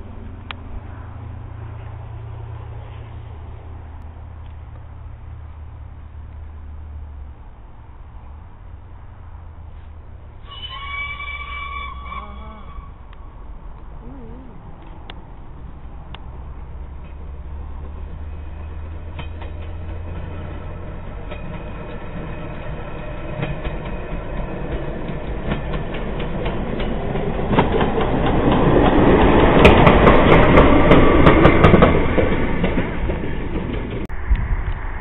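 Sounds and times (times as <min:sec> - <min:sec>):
sharp clicks of train wheels: 0:14.8 - 0:34.9
steam locomotive running: 0:15.5 - 0:34.1.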